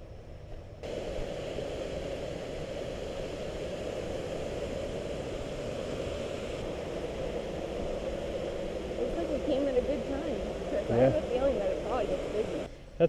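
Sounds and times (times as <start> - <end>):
waterfall roaring: 3.5 - 12.7.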